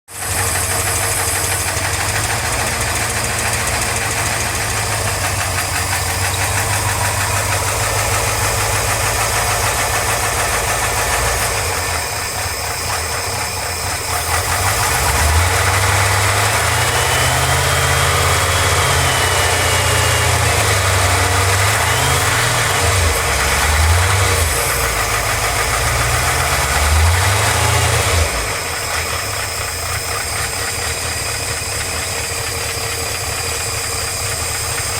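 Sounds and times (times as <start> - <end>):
engine drone: 0.1 - 34.9.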